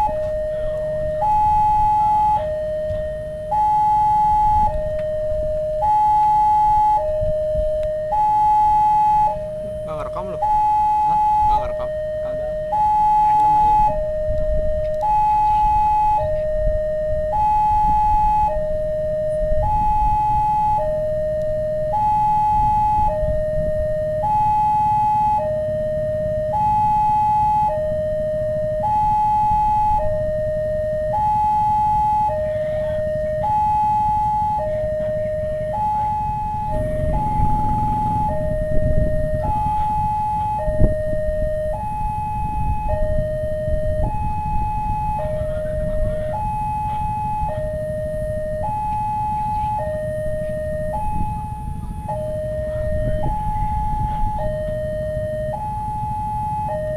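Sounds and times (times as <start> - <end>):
two-tone warning siren: 0.0 - 56.9
low rumble: 34.5 - 55.9.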